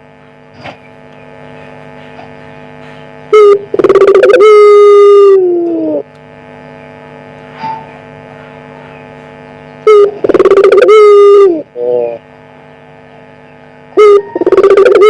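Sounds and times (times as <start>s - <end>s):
steady electrical hum: 0.0s - 15.0s
dove cooing: 3.4s - 6.1s, 9.9s - 12.2s, 14.0s - 15.0s.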